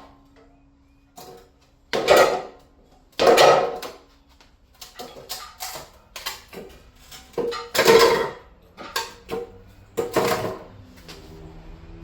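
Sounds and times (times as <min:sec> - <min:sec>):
metal pipes clanking: 0:04.8 - 0:10.7.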